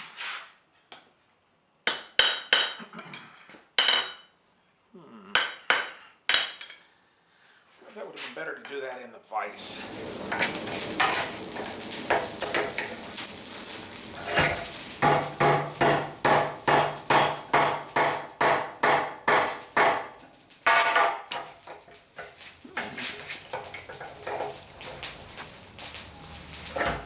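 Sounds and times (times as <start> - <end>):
hammer ringing on anvil: 1.9 - 4.6, 5.3 - 7.0, 15.0 - 20.1
steady hiss: 9.4 - 27.0.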